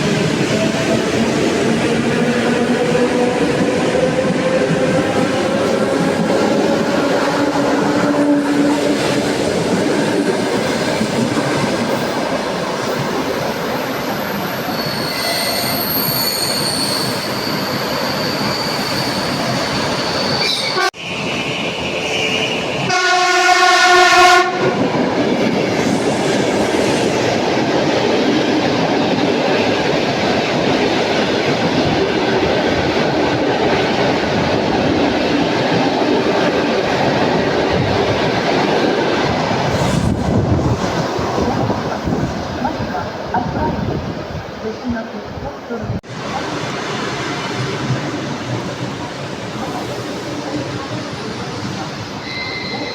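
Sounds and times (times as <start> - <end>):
train wheels rumbling on rail: 0.0 - 52.9
wheels squealing: 13.4 - 20.8, 52.2 - 52.9
train horn blast: 22.9 - 24.8.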